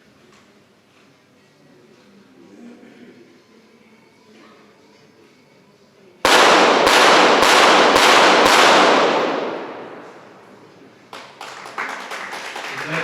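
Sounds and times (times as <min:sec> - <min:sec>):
pistol shots with reverberation: 0:06.3 - 0:10.7.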